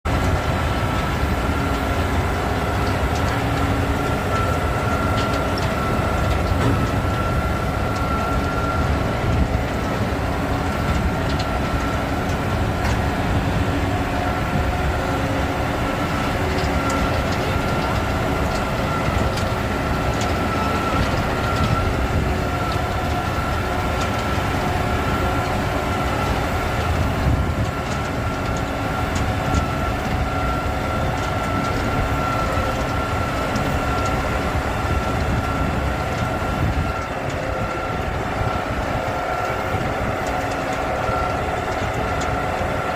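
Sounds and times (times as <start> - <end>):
feed mixer rumbling: 0.0 - 42.9
constant high whine: 0.1 - 42.9.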